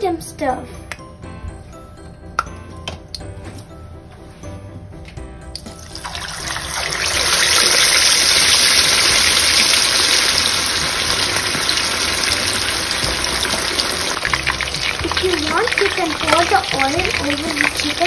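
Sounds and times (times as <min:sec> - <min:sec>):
hot oil sizzling: 0:05.6 - 0:18.0.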